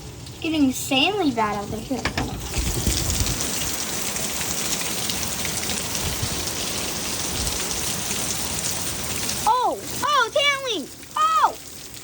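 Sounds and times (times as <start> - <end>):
hail and heavy rain pelting: 0.4 - 12.0
wind gusting against microphone: 1.7 - 3.8, 5.8 - 6.6.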